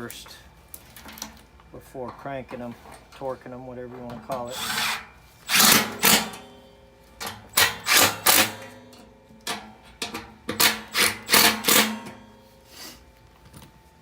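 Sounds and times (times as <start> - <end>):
power drill driving screws: 4.5 - 6.2, 7.6 - 8.5, 10.6 - 11.9.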